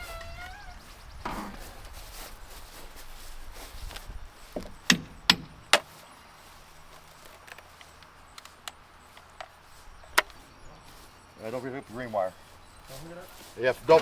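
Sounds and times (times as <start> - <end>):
sharp knocks: 4.6 - 5.9.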